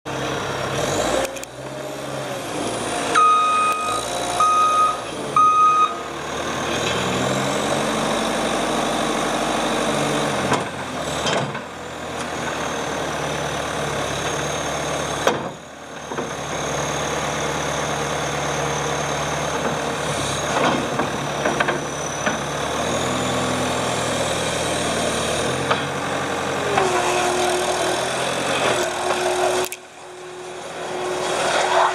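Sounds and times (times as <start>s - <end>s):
diesel engine running: 0.1s - 31.9s
back-up alarm beeping: 3.2s - 6.0s.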